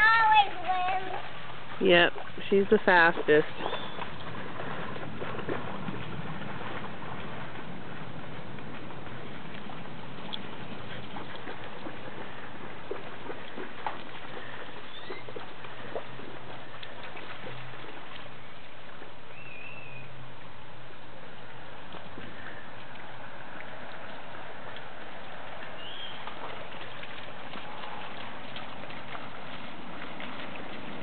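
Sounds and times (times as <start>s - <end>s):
dogs splashing through puddles: 0.0s - 31.0s.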